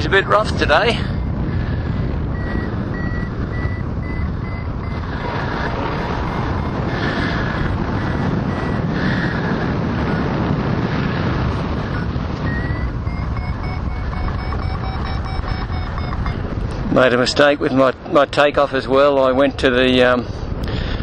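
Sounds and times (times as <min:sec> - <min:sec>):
variometer beeping: 0:00.0 - 0:06.9, 0:08.2 - 0:08.9, 0:11.9 - 0:17.1
wind rushing over microphone: 0:00.0 - 0:21.0.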